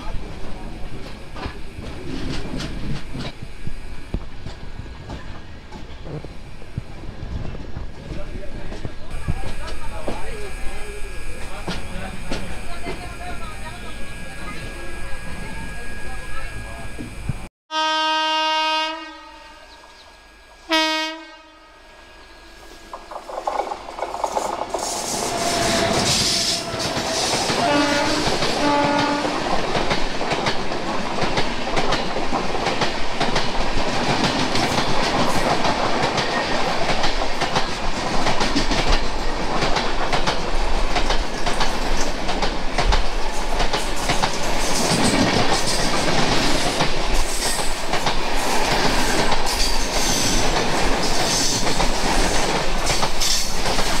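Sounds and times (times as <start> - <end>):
rushing train wheel clatter: 0.0 - 17.5, 22.7 - 54.0
oncoming train rumble: 0.0 - 54.0
train horn blasts: 17.7 - 22.9, 24.8 - 29.5.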